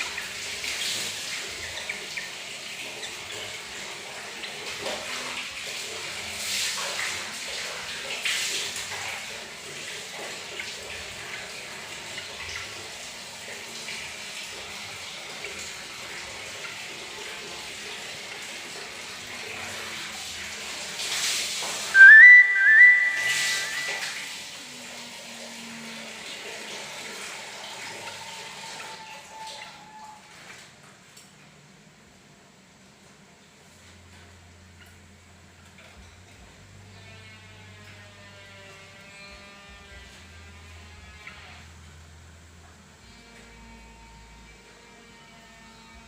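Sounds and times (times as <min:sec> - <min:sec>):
person whistling: 0:22.0 - 0:24.3.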